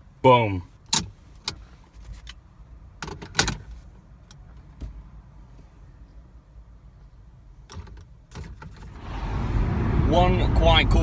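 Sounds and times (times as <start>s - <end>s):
clicks and knocks inside car: 3.0s - 5.7s
low steady rumble: 8.9s - 11.0s.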